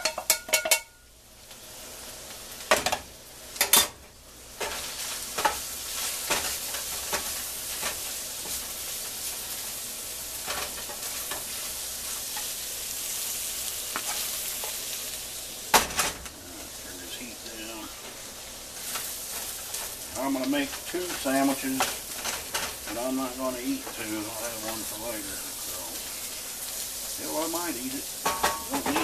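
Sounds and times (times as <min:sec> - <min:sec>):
spatula knocking on pan: 0:00.0 - 0:00.9, 0:28.2 - 0:29.0
food sizzling in a skillet: 0:00.0 - 0:29.0
spatula scraping and tapping: 0:04.6 - 0:08.6, 0:13.9 - 0:14.8.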